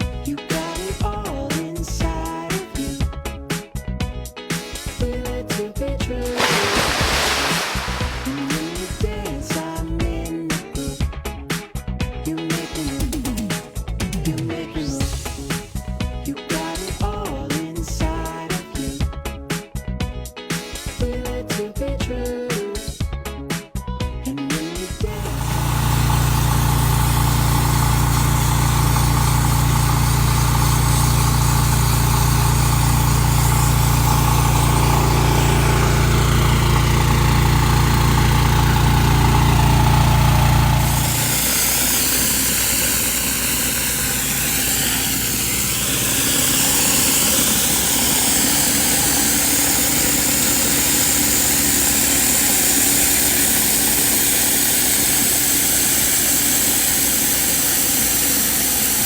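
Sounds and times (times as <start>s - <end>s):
pressure washer spray hissing: 6.2s - 9.8s, 39.4s - 59.0s
pressure washer engine hum: 6.2s - 10.2s, 25.0s - 59.0s.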